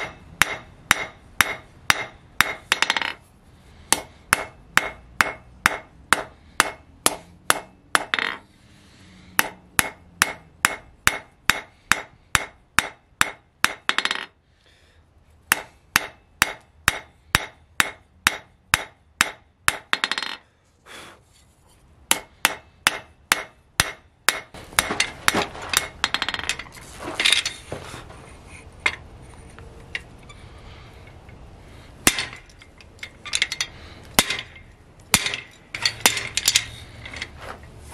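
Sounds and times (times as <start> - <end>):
hammer striking steel on anvil: 0.0 - 3.2, 3.9 - 8.4, 9.4 - 14.3, 15.5 - 20.4, 22.1 - 26.6, 32.0 - 32.7, 33.3 - 36.7
metal clanking and scraping: 24.6 - 31.4, 32.0 - 37.9.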